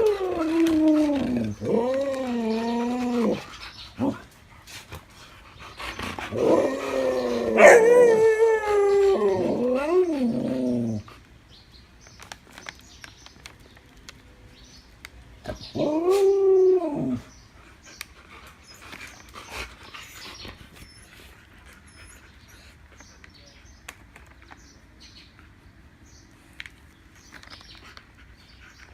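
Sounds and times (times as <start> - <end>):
dog howling whine: 0.0 - 4.2, 6.3 - 11.1, 15.7 - 17.3.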